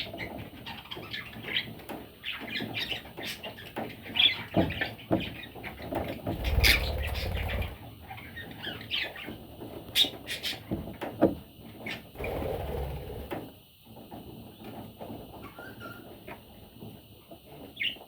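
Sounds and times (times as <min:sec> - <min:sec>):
low rumble: 0:06.3 - 0:08.0
budgerigars chirping: 0:06.4 - 0:09.2.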